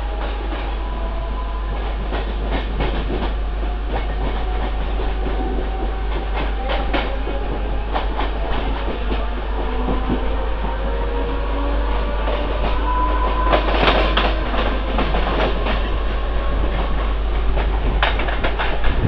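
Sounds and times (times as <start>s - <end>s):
train rumble: 0.0s - 19.0s
wheel clacks over rail joints: 16.6s - 19.0s.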